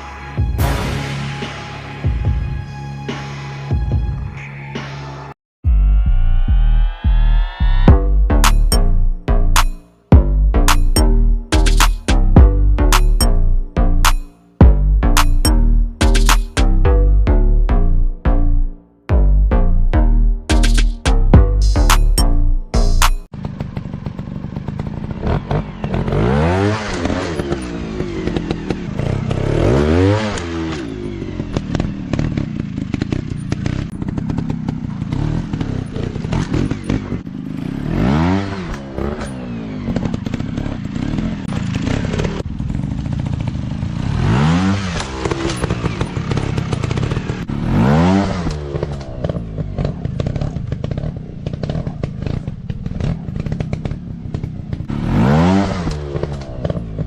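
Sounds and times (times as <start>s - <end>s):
dirt bike engines revving: 23.4s - 57.0s
bikes clattering over rough ground: 30.7s - 37.5s, 48.4s - 54.9s.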